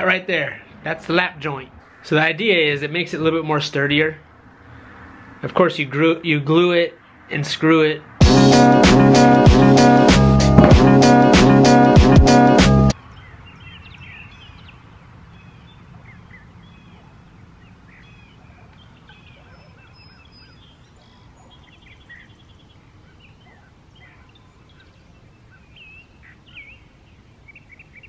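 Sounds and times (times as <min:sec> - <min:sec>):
birds chirping and whistling: 0:13.1 - 0:14.8, 0:15.4 - 0:26.9.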